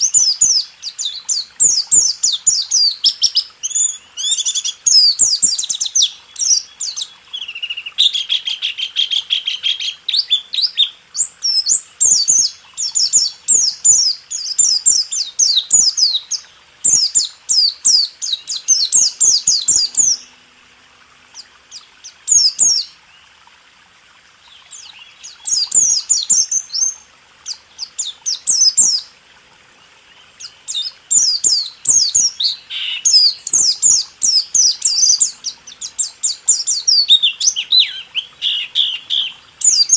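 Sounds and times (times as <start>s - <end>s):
bird singing high chirps: 0.0s - 20.4s, 21.4s - 23.0s, 24.4s - 29.1s, 30.1s - 39.9s
buzzy bird trill: 0.0s - 20.4s.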